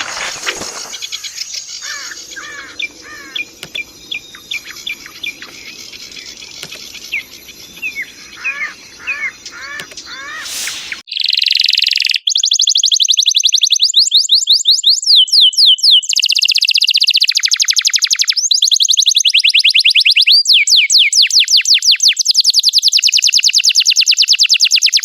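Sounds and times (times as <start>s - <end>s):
bird fast buzzing trill: 0.0s - 11.0s
songbird chirping: 0.0s - 16.7s.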